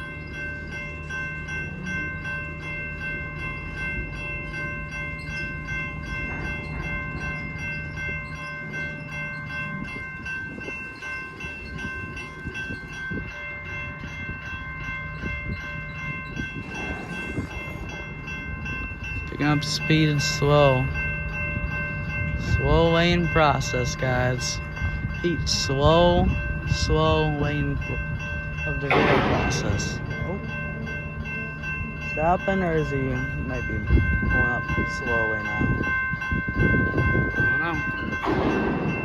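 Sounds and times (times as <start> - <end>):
train rumbling slowly: 0.0 - 39.0
high-pitched tones: 15.1 - 21.8.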